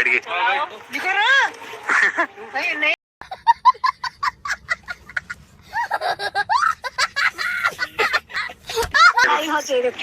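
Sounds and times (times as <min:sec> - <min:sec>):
person laughing high-pitched: 0:03.3 - 0:09.4.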